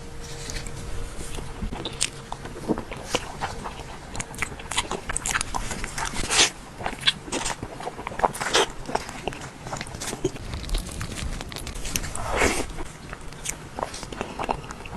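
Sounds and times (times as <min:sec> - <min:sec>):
biting and chewing: 0:00.0 - 0:14.9.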